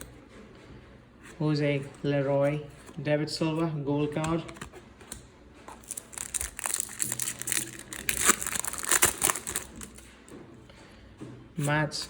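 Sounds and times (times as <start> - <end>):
wrapper being torn and crinkled: 5.8 - 10.2.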